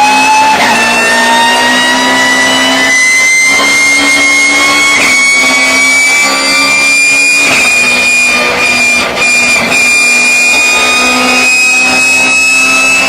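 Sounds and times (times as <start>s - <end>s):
race car engine: 0.0s - 13.0s
race car gearbox whine: 0.0s - 13.0s.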